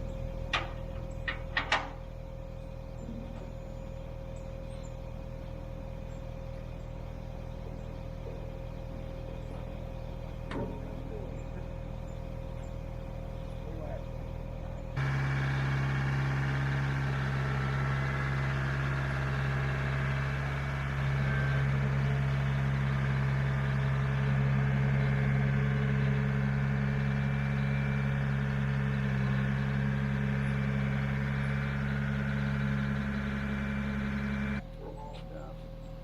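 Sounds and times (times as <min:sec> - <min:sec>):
truck engine idling: 0:00.0 - 0:36.0.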